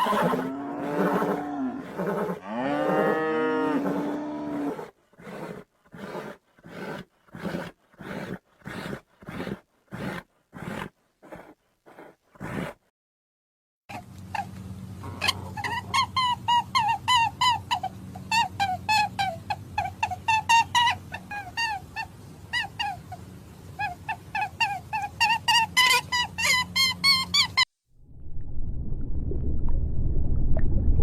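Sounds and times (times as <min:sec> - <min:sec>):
animal yelping: 0:00.0 - 0:02.4, 0:03.8 - 0:12.8, 0:13.9 - 0:23.2, 0:23.8 - 0:27.6.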